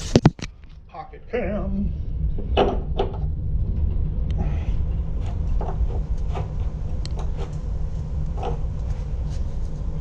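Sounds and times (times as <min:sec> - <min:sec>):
fabric rubbing over microphone: 0:00.0 - 0:00.4, 0:07.3 - 0:10.0
knocks and scrapes: 0:02.4 - 0:10.0.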